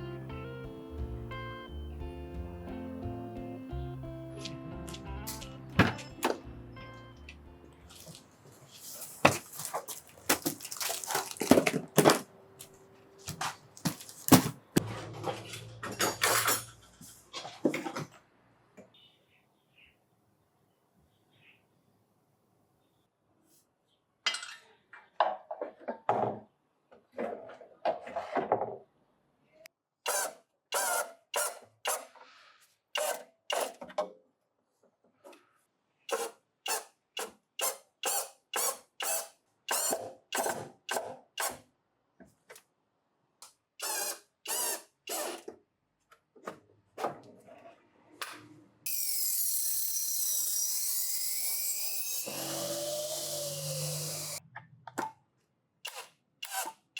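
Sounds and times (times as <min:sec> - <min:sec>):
hand tool working wood: 0:07.9 - 0:12.2.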